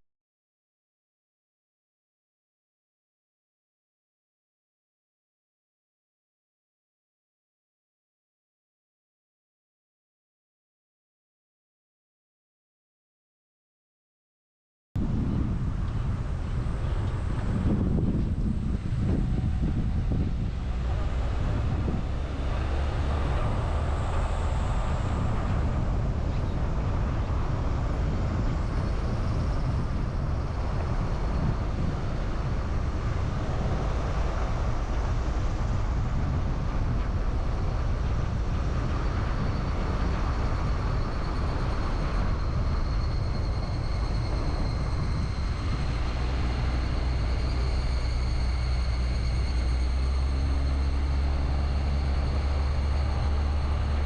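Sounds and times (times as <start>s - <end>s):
car engine and road rumble: 15.0s - 54.0s.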